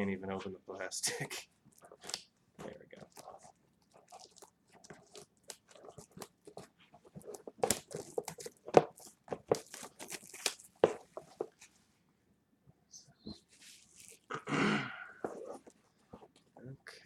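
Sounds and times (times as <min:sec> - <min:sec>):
plastic shrink-wrap crinkling: 0:01.7 - 0:11.8, 0:13.5 - 0:14.4.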